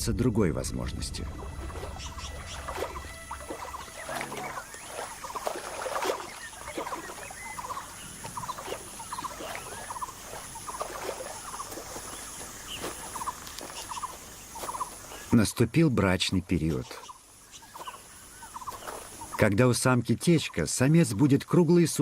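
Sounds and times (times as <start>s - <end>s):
high pulsing insect buzz: 1.3s - 15.4s, 16.8s - 19.4s
rapid chirping animal calls: 1.8s - 15.3s, 16.8s - 19.4s.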